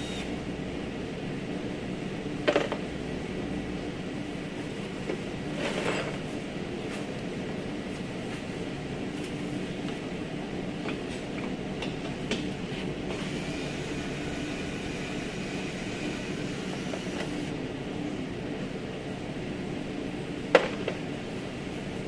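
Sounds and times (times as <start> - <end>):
machine hum: 0.0 - 4.6, 12.7 - 22.0.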